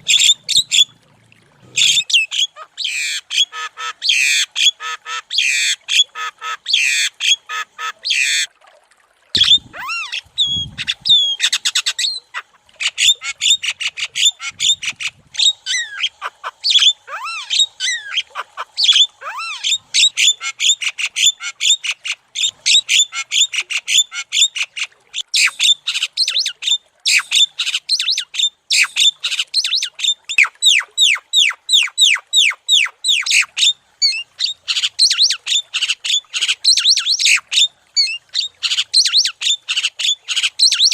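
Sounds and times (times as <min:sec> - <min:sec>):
myna squawking and whistling: 0:00.0 - 0:00.9, 0:01.8 - 0:05.7, 0:09.4 - 0:21.8, 0:22.4 - 0:40.9.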